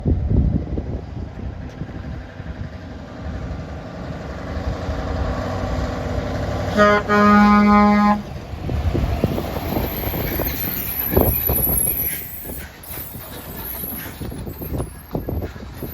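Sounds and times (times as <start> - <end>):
lorry engine and road noise: 0.0 - 15.9
truck air horn: 6.7 - 8.3.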